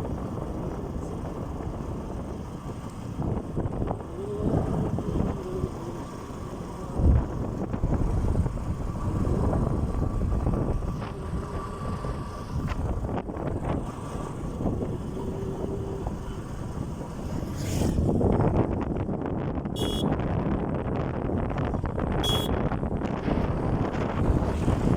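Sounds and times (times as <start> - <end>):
motorcycle engine rumbling: 0.0 - 24.9
wind buffeting microphone: 0.0 - 24.9.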